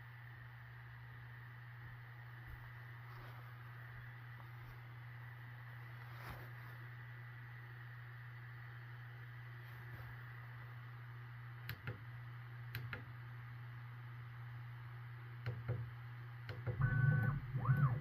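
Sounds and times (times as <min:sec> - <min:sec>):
printer fan hum: 0:00.0 - 0:18.0
printer motors whining: 0:16.6 - 0:18.0.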